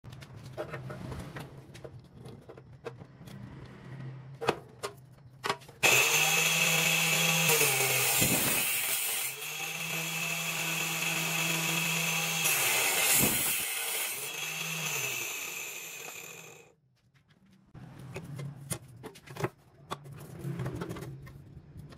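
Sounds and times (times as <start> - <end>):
electric table saw whining: 5.8 - 16.7.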